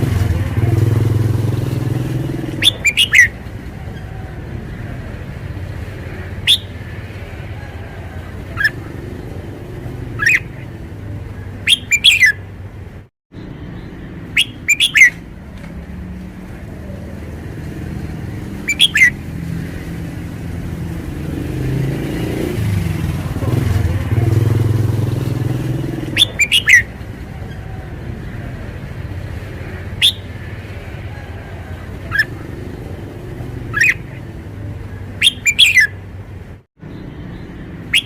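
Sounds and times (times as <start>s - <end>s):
bird singing bright phrases: 2.1s - 3.4s, 6.0s - 7.1s, 10.0s - 12.5s, 13.4s - 15.3s, 18.4s - 19.2s, 25.3s - 27.6s, 29.0s - 30.5s, 32.0s - 34.4s, 35.0s - 36.0s, 36.8s - 38.0s.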